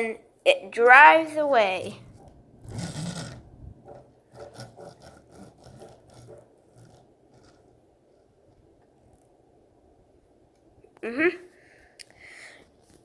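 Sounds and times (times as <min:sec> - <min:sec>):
plastic toy wheels scraping: 0:01.9 - 0:07.8.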